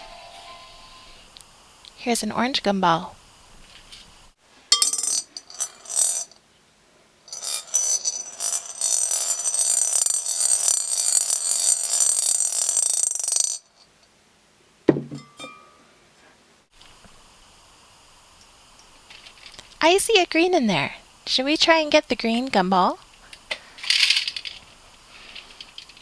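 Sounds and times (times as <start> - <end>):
gumball rattling down plastic track: 7.3 - 13.8, 23.8 - 24.7
knock and clatter: 14.9 - 15.4.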